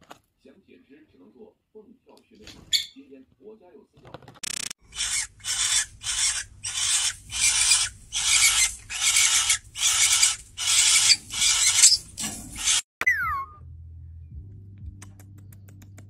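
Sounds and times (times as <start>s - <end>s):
cockatiel raspy call: 4.8s - 12.8s.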